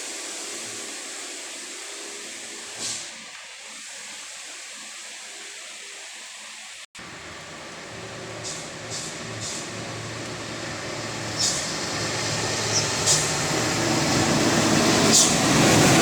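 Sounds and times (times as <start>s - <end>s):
short sharp hisses: 2.8s - 3.2s, 8.4s - 9.8s
dump truck diesel engine: 7.0s - 16.0s
heavy rain: 7.0s - 16.0s
tyres on wet road: 7.0s - 16.0s.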